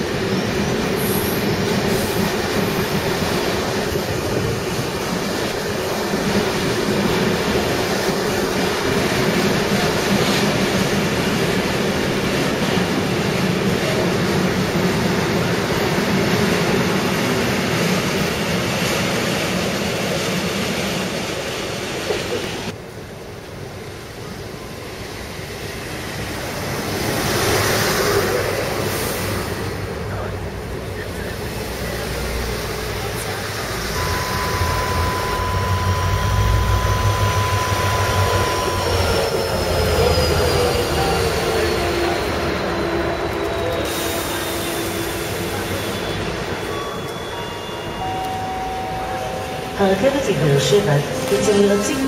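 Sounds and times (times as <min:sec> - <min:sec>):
diesel locomotive engine rumble: 0:00.0 - 0:52.0
freight train wheels on rails: 0:00.0 - 0:52.0
steady whine: 0:33.0 - 0:52.0
braking wheels squealing: 0:33.9 - 0:49.8.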